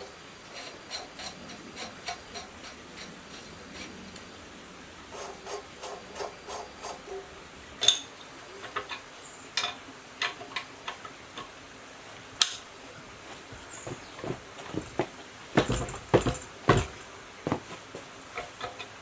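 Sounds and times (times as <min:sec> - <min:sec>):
sharp knocks: 0:13.5 - 0:17.7.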